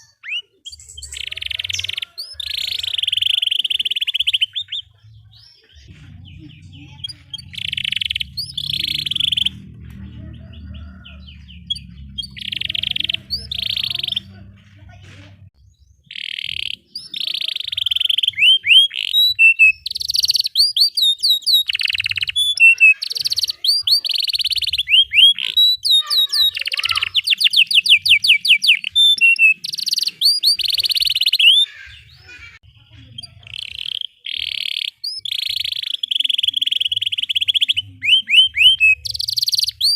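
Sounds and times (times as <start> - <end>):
canary singing: 0.0 - 14.6, 15.4 - 39.9.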